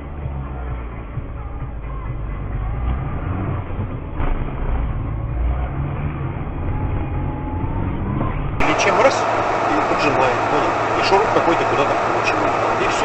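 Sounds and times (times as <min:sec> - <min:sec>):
car cabin rumble: 0:08.6 - 0:13.0.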